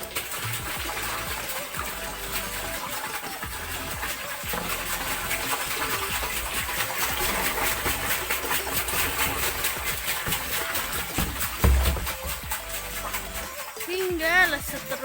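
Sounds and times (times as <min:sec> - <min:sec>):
water gushing into a tank: 0:00.0 - 0:15.0
water pump engine running: 0:00.0 - 0:15.0.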